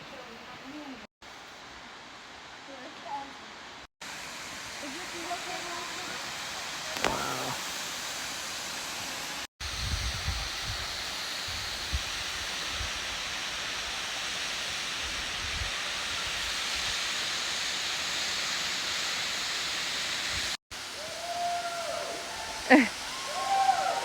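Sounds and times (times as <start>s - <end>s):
waterfall rushing: 4.4s - 9.5s
wind buffeting the microphone: 9.6s - 13.2s.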